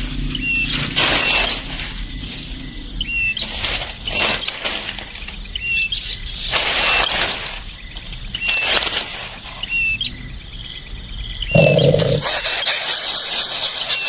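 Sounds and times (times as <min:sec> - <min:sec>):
cricket-like trill: 0:00.0 - 0:14.0
high bird chirps: 0:11.6 - 0:12.3.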